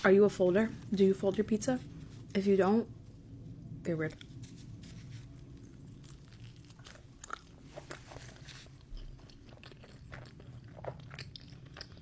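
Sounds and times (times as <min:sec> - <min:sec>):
person chewing pizza crust crunching: 0:04.2 - 0:12.0.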